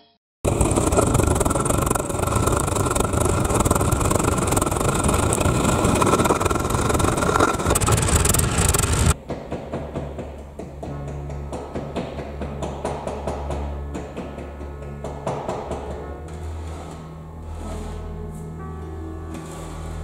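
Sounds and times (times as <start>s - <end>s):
furnace rushing noise: 0.5s - 9.2s
quiet music: 10.2s - 20.0s.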